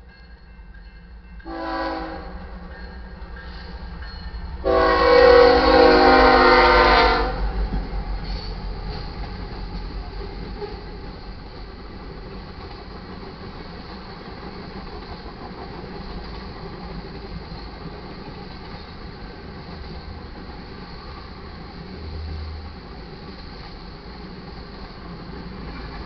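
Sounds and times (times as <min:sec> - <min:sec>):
passing train rumble: 0:00.0 - 0:26.0
locomotive air horn blasts: 0:01.4 - 0:02.5, 0:04.6 - 0:07.5.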